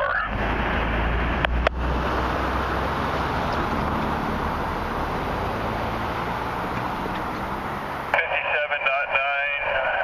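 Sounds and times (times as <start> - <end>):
freight train wheels on rail: 1.3 - 8.1.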